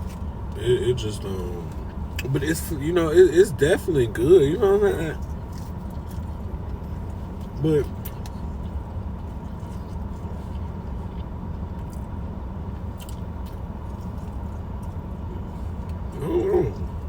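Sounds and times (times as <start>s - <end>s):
chewing and crunching: 0.0s - 17.0s.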